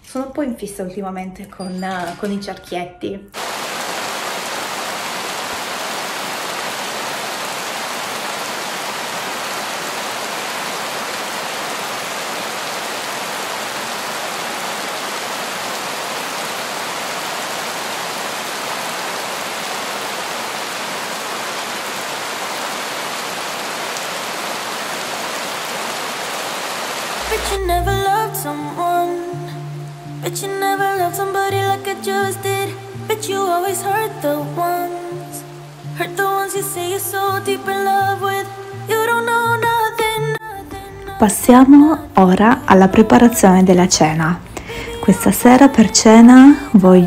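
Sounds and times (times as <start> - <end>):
rain on a wet street: 3.4 - 28.8, 29.6 - 40.2.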